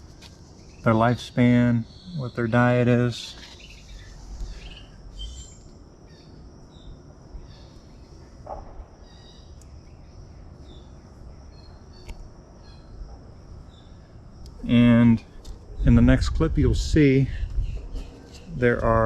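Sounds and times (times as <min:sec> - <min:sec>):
high insect trill: 0:00.0 - 0:19.0
bird chirps: 0:00.4 - 0:13.0.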